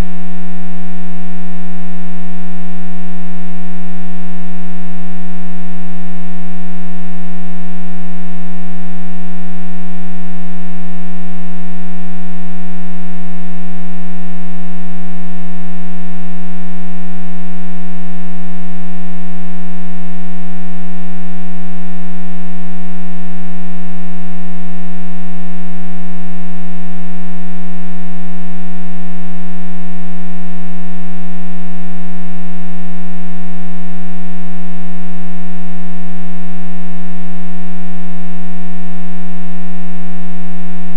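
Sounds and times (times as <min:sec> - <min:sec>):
low buzzing hum: 0:00.0 - 0:01.2.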